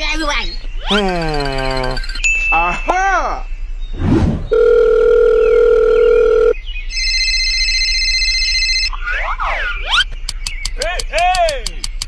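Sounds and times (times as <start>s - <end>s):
telephone dial tone: 4.5s - 8.9s
telephone ringing tone: 4.5s - 8.9s.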